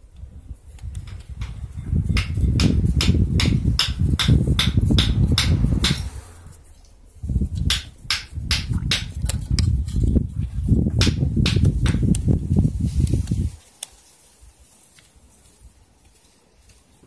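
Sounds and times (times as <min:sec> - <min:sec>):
low rumbling handling noise: 0:00.0 - 0:13.6
hand tool tapping metal: 0:00.8 - 0:06.2, 0:07.6 - 0:09.1.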